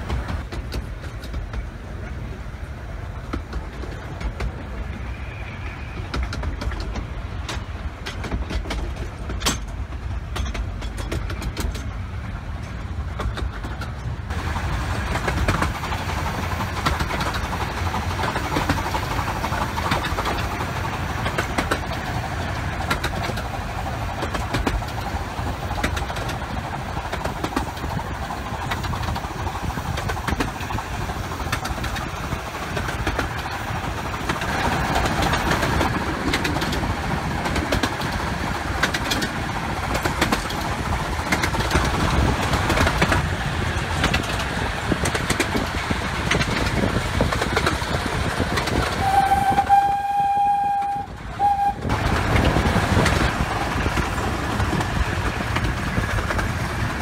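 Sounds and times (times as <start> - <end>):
train wheels rumbling on rails: 0.0 - 57.0
wheel clicks: 34.0 - 49.0.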